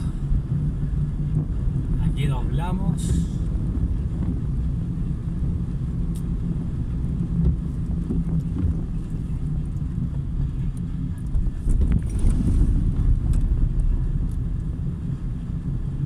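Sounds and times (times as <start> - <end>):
car engine and road noise inside: 0.0 - 16.0.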